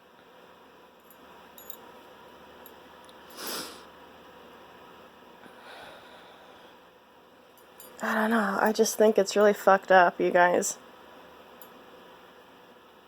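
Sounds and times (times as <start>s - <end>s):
person sniffing: 3.3s - 3.9s.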